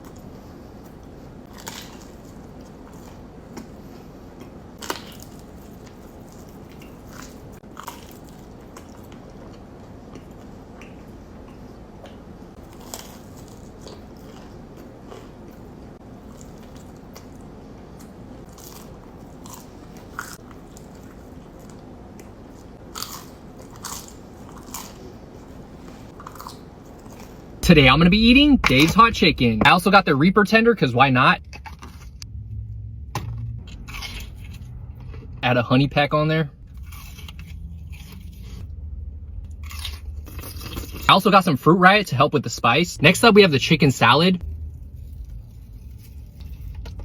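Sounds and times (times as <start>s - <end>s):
crunchy chewing: 0.8s - 27.6s, 39.6s - 41.1s
low background hiss: 27.6s - 31.4s.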